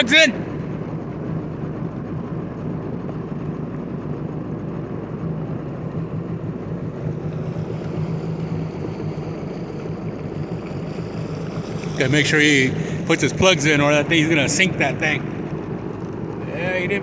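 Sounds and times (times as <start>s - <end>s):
jet ski engine idling: 0.0s - 17.0s.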